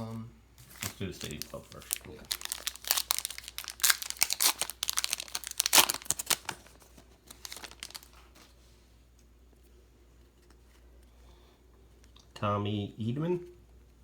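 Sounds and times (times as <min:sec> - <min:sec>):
foil wrapper tearing and crinkling: 0:00.7 - 0:08.2.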